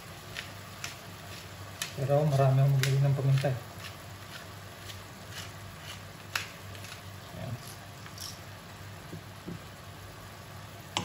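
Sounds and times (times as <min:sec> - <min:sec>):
oil popping and crackling: 0:00.0 - 0:08.5
meat and onions sizzling: 0:00.0 - 0:11.0.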